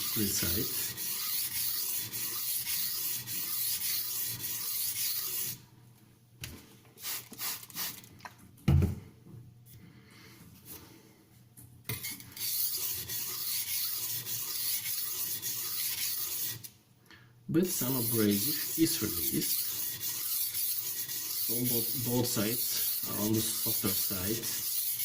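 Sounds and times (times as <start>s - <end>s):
knife scraping on sharpening stone: 0.0s - 5.6s, 12.0s - 16.6s, 18.0s - 25.0s.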